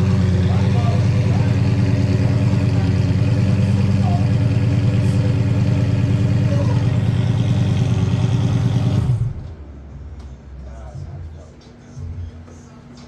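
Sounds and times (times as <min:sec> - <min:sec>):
sports car engine idling: 0:00.0 - 0:09.7.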